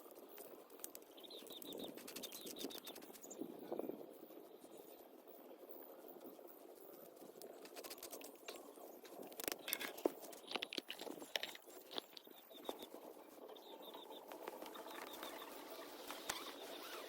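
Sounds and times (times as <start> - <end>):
clicks knocks and scrapes: 9.3 - 12.9.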